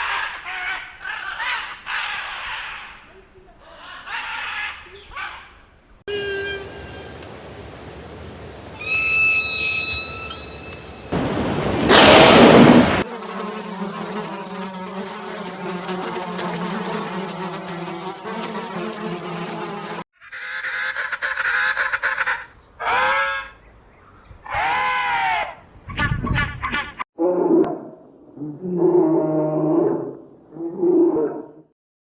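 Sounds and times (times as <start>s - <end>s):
loud noisy burst: 11.2s - 13.3s
insect buzzing: 12.6s - 20.1s.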